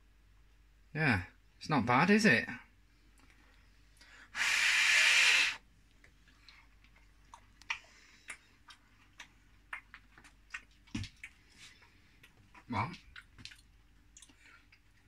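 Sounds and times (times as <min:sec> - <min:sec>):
loud rush of breath: 0:04.1 - 0:05.6
mouth clicks: 0:04.4 - 0:05.6
person chewing biscuit: 0:06.0 - 0:15.0.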